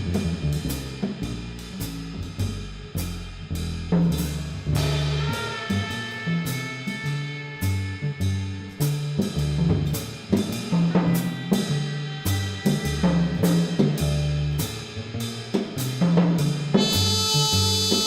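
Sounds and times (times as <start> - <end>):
double bass playing low notes: 0.0 - 18.0
jazz drum kit playing: 0.0 - 18.0
horn playing: 16.8 - 18.0.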